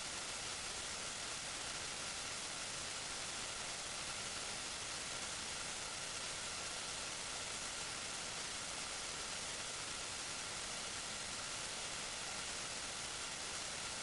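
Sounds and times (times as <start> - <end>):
faint thin whine: 0.0 - 14.0
recording hiss: 0.0 - 14.0.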